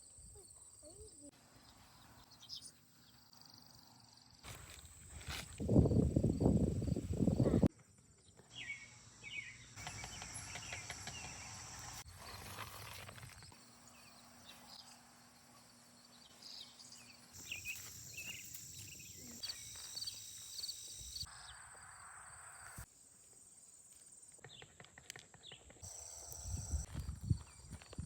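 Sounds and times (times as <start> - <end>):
bird chirps: 8.3 - 12.0, 16.1 - 21.7
insects buzzing: 8.8 - 22.9, 25.8 - 27.8.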